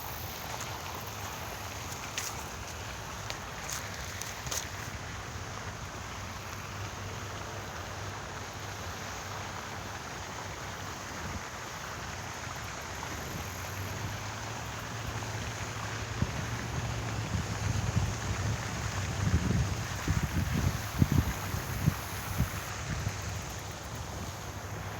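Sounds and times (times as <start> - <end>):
wind across microphone: 16.1 - 23.5.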